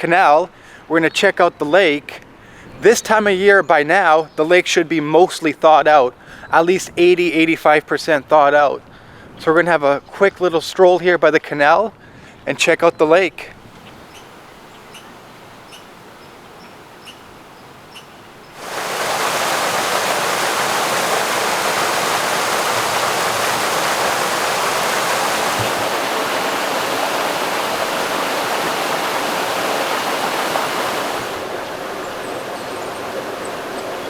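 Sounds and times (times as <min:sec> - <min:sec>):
rushing water in a canal: 0:18.4 - 0:34.0.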